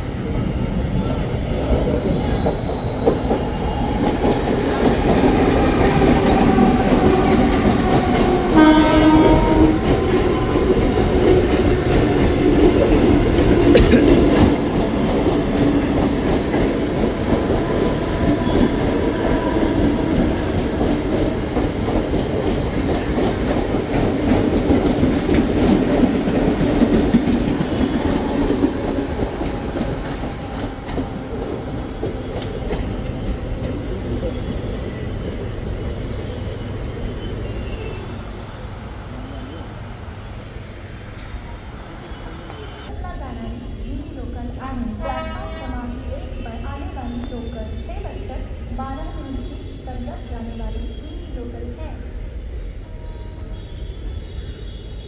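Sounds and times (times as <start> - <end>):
train rumbling on tracks: 0.0 - 55.0
train horn: 8.4 - 10.3, 44.9 - 46.0, 53.0 - 55.0.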